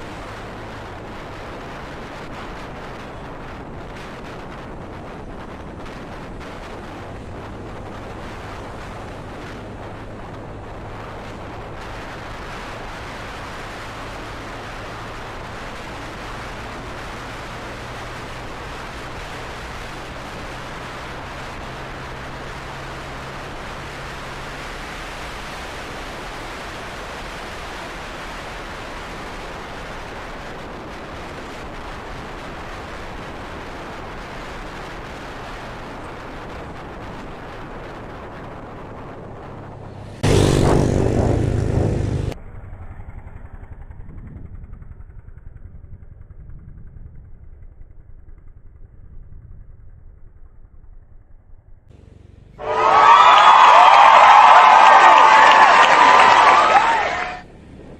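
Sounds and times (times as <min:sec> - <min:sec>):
motorcycle engine hum: 0:00.0 - 0:57.9
wind rushing: 0:52.6 - 0:57.9.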